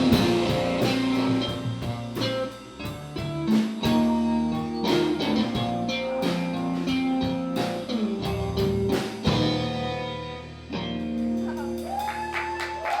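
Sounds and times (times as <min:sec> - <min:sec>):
drum hits: 0:00.0 - 0:04.2
electric guitar ringing notes: 0:00.0 - 0:12.0.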